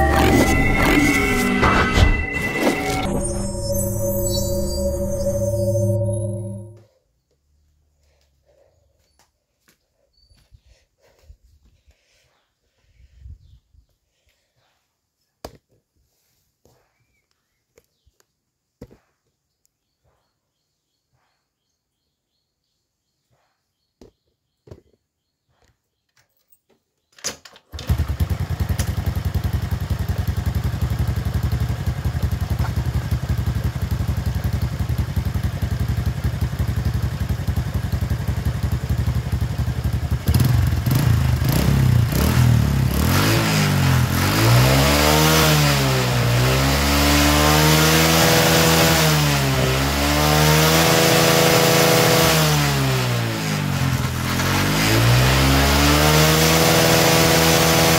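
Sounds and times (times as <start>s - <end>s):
engine throttle blips: 0.0s - 6.8s
motorcycle engine starting: 27.7s - 57.9s
motorcycle engine idling: 28.0s - 42.2s.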